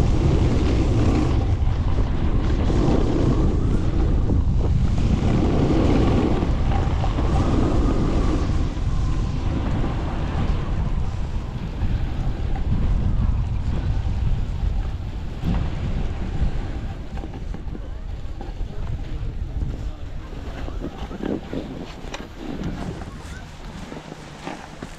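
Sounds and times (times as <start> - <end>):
wind buffeting microphone: 0.0 - 24.9.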